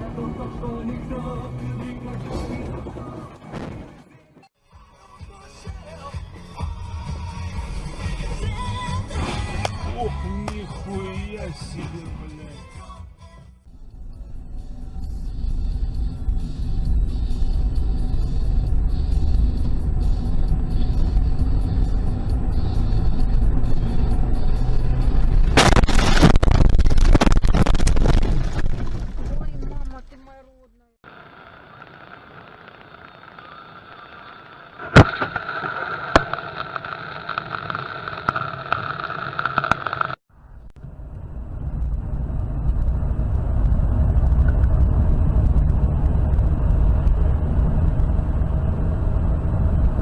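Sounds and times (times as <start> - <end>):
car driving rumble: 0.0 - 4.1, 13.7 - 50.0
loud rushing crackling noise: 24.9 - 29.5, 31.1 - 40.2.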